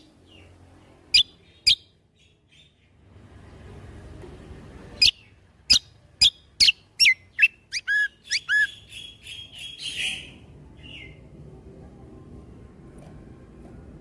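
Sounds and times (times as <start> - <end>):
songbird whistling: 1.1 - 2.7, 5.0 - 11.2
buzzy bird trill: 5.0 - 11.2.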